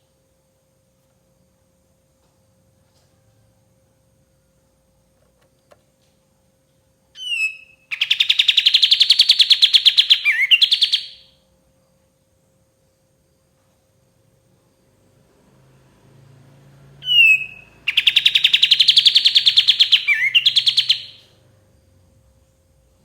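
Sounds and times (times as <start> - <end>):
songbird call and trill: 7.2 - 11.4, 17.0 - 21.4.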